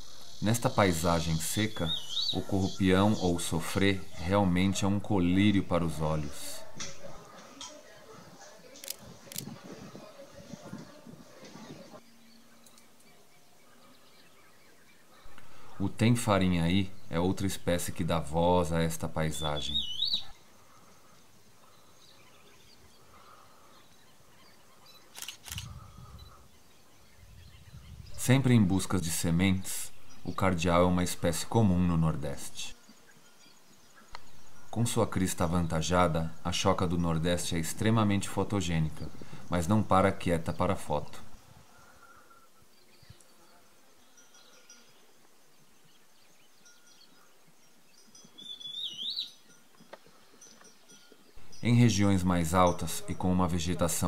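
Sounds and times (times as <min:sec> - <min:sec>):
high bird chirps: 0:00.0 - 0:04.3, 0:19.3 - 0:20.4, 0:45.8 - 0:53.2
faint bird calls: 0:06.2 - 0:17.7, 0:19.3 - 0:28.3, 0:41.1 - 0:47.5
sharp clicks: 0:25.1 - 0:25.7
bird whistled call: 0:48.4 - 0:49.4.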